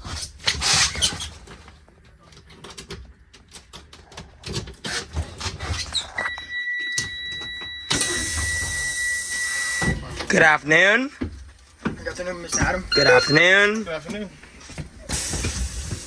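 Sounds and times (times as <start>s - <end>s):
bus warning buzzer tone: 6.2s - 10.3s, 12.9s - 13.6s
loud hiss: 15.0s - 16.0s.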